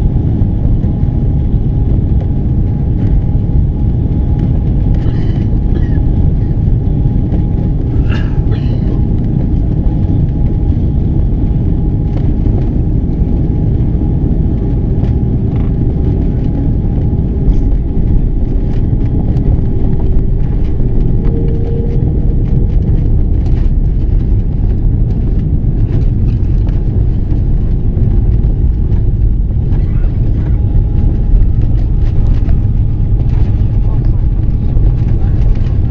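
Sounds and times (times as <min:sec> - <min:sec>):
engine and airflow rumble: 0:00.0 - 0:35.9
steady hum: 0:00.0 - 0:35.9
light rattles and clicks: 0:15.0 - 0:35.9.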